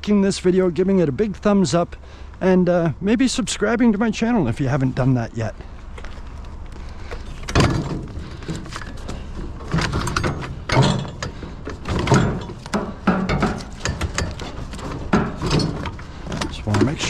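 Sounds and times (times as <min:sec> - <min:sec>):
scrap metal clunking: 0:06.9 - 0:17.0.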